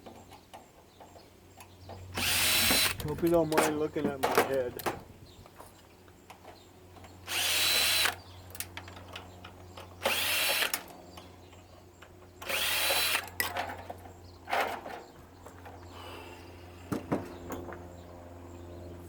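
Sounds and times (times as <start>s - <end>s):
power drill whine: 2.2s - 3.0s, 7.3s - 8.2s, 10.0s - 10.8s, 12.4s - 13.5s.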